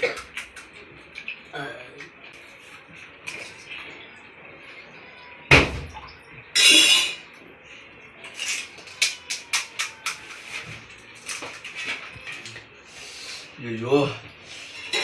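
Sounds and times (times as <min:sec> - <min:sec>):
plates and glasses clinking: 0:06.6 - 0:07.3, 0:14.6 - 0:15.0.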